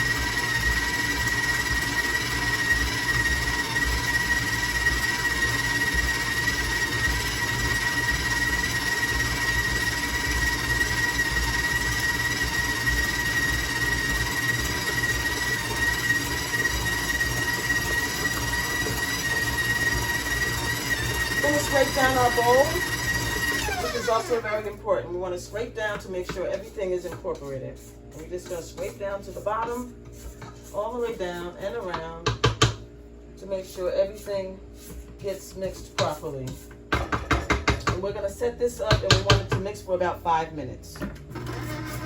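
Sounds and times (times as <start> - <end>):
stand mixer motor whine: 0.0 - 24.8, 41.1 - 42.0.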